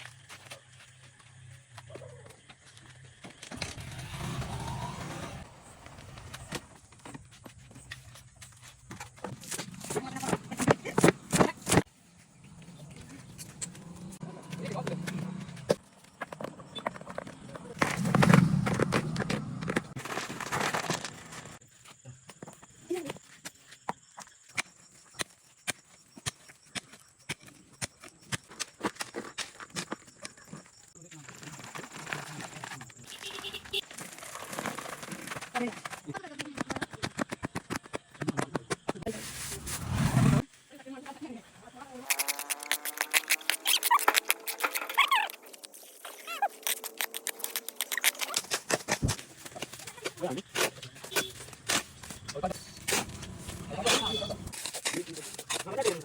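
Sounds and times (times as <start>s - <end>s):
motor vehicle passing by: 3.7s - 6.0s, 39.4s - 40.5s.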